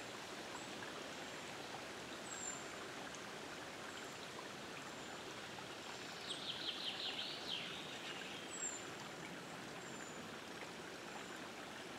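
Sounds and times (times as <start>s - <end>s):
outdoor background hiss: 0.0s - 11.9s
songbird singing: 6.0s - 8.9s.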